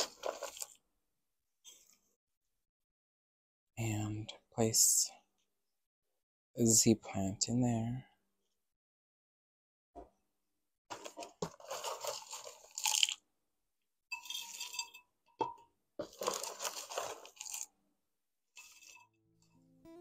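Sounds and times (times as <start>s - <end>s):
soil crunching and rustling: 10.9s - 13.2s, 16.0s - 17.7s.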